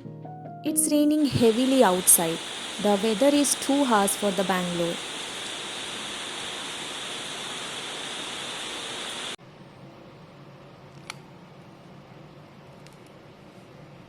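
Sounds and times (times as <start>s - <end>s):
heavy rain falling: 1.2s - 9.4s.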